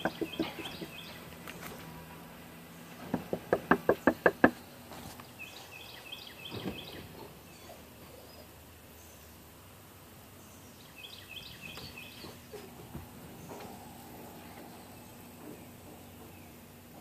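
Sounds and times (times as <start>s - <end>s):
sharp knocks: 0.0s - 1.0s, 3.0s - 4.6s.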